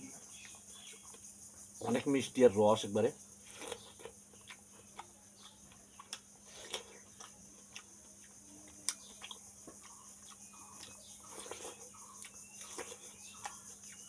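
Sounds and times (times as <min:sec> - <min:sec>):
wet chewing crunches and mouth clicks: 0:03.4 - 0:14.0.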